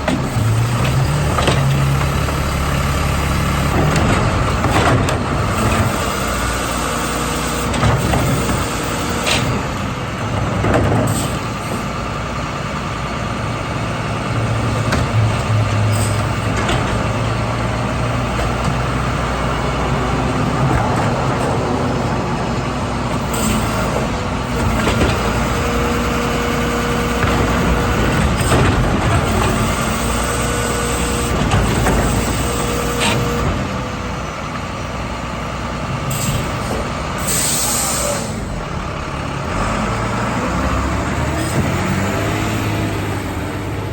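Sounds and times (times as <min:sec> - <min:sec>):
sharp knocks and clanks: 0:00.0 - 0:02.4, 0:03.6 - 0:06.3, 0:07.7 - 0:11.9, 0:14.7 - 0:17.3, 0:27.0 - 0:33.7
garbage truck engine running: 0:00.0 - 0:43.9.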